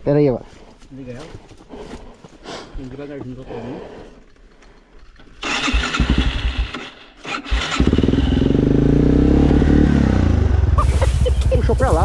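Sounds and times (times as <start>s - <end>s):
dirt bike engine cranking: 5.2s - 9.8s
dirt bike engine running: 5.4s - 12.0s.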